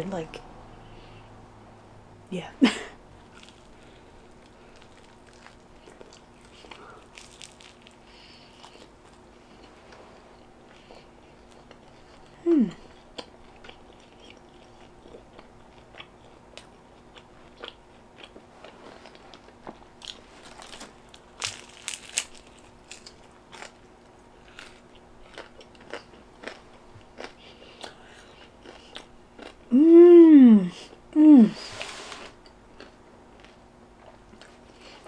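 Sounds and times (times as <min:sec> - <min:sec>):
crunching crispy crust: 0:03.3 - 0:09.7, 0:17.6 - 0:27.6
person humming mm: 0:12.3 - 0:12.9, 0:29.7 - 0:31.7.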